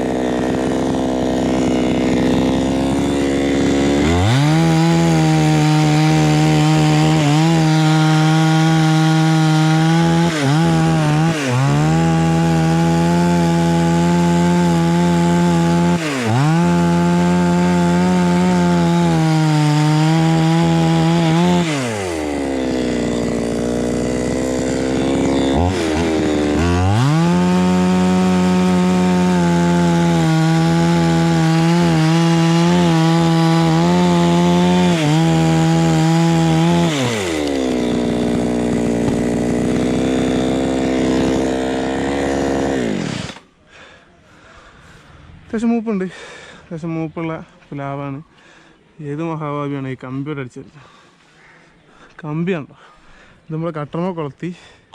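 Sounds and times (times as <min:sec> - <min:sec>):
chainsaw cutting wood: 0:00.0 - 0:43.6.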